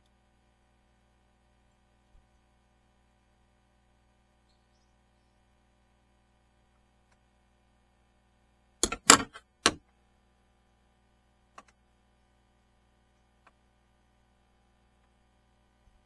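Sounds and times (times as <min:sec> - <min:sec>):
hard objects knocking: 0:08.8 - 0:09.8.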